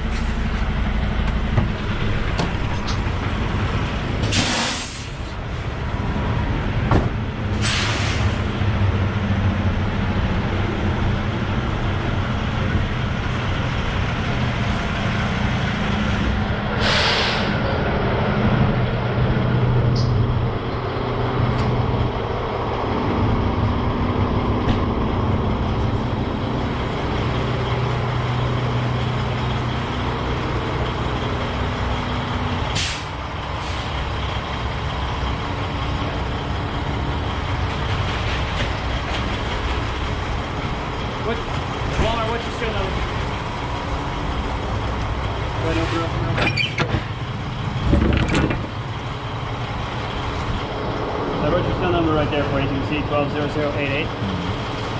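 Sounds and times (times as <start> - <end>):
diesel truck engine running: 0.0 - 54.9
air brakes hissing: 4.2 - 5.4, 7.6 - 8.5, 16.7 - 17.7, 32.7 - 33.9.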